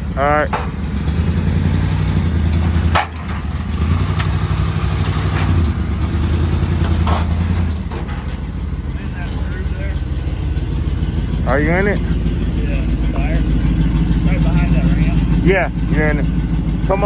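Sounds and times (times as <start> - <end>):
sharp metal clanks: 0.0 - 1.5, 2.2 - 12.3
vehicle engine idling: 0.0 - 17.0.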